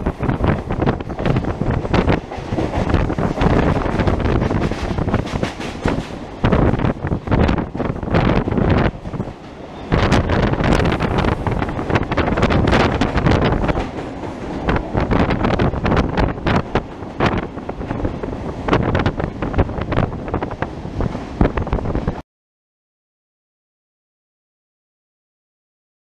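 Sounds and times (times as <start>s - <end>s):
train rumbling through tunnel: 0.0s - 22.2s
wind buffeting microphone: 0.0s - 22.2s.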